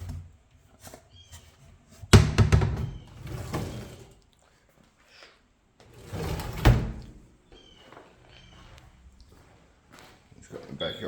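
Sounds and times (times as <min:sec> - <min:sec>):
door thunk: 0:02.1 - 0:03.1
door rattling: 0:02.1 - 0:04.0.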